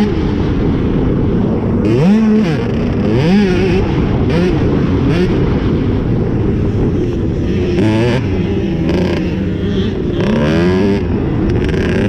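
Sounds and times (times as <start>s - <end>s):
motocross bike revving: 0.0s - 0.7s, 1.4s - 12.0s.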